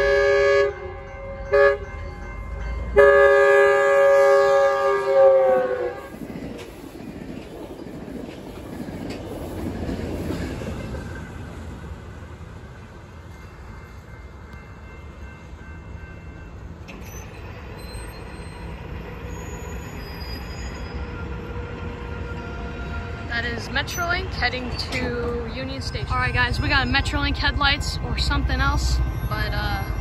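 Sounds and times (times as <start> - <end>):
train wheels rumbling: 0.0 - 30.0
faint high squeals: 17.0 - 21.2.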